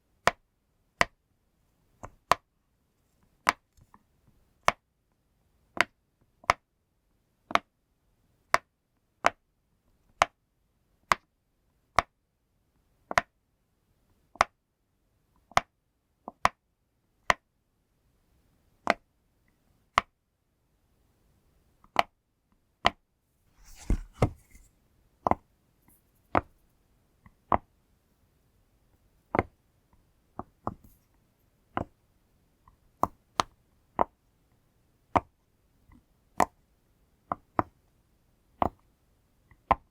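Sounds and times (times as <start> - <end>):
thump and rustle of handling: 23.5 - 24.7.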